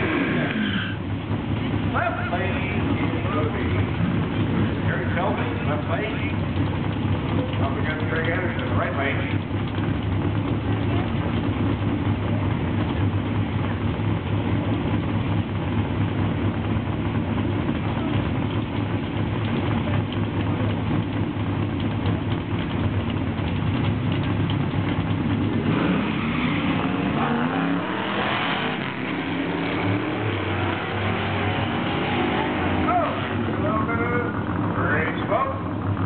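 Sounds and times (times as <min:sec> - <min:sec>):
engines revving hard: 0:00.0 - 0:11.9, 0:23.7 - 0:36.0
drag racing engines idling: 0:00.0 - 0:36.0.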